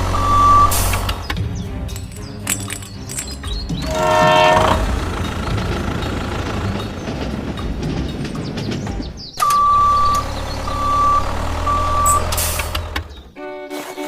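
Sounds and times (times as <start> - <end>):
vehicle reversing alarm beeping: 0.0 - 1.2, 9.4 - 13.0
engine humming: 0.0 - 13.7.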